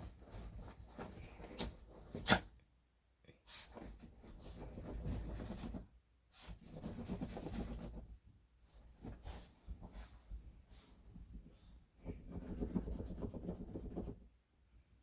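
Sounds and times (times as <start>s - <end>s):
small dog sneezing: 2.2s - 2.6s.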